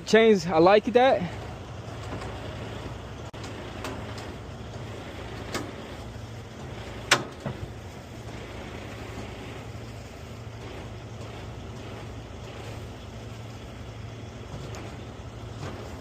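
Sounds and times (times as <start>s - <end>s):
heavy vehicle engine idling: 0.0s - 16.0s
sharp knocks and clanks: 1.4s - 8.6s.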